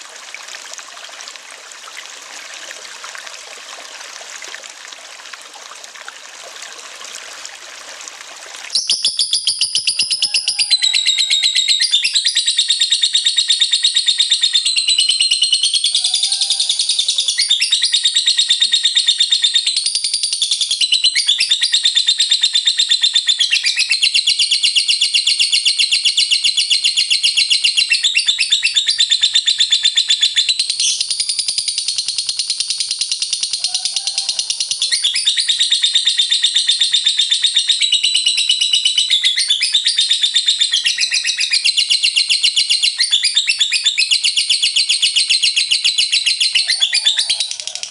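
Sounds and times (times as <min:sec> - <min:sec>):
running water: 0:00.0 - 0:09.0
lovebird trilling chatter: 0:46.5 - 0:47.9.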